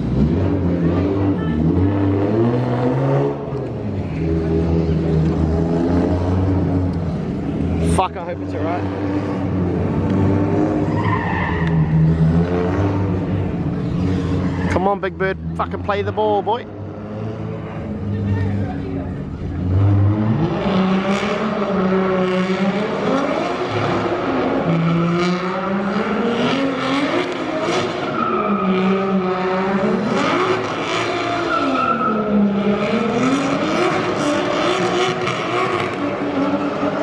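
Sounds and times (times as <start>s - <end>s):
car engine revving: 0.0s - 37.0s
tyre squeal: 10.8s - 12.0s, 14.1s - 15.0s, 27.8s - 29.2s, 31.2s - 32.5s.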